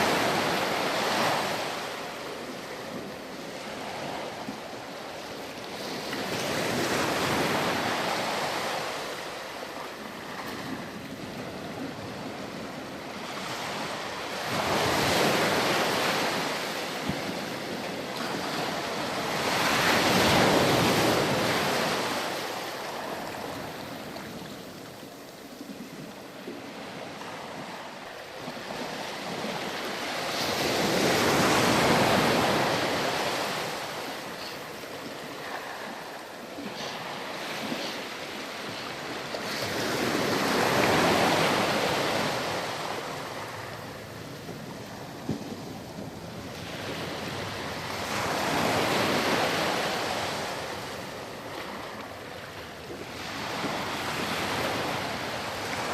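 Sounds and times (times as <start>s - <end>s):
ocean waves breaking: 0.0s - 55.9s.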